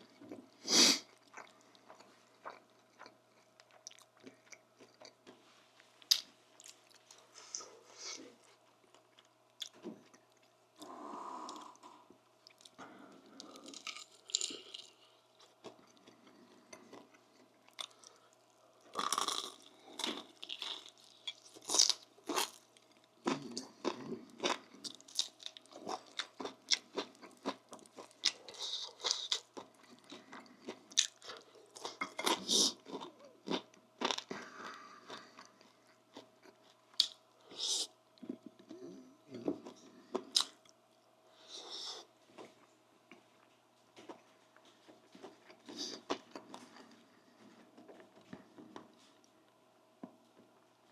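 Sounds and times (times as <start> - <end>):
person chewing crunchy food: 0.0 - 40.8, 41.5 - 49.3.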